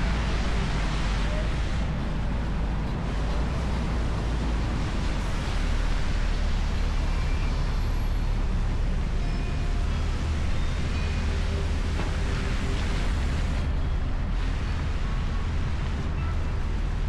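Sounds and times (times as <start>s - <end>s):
wind rush and road noise: 0.0s - 17.0s.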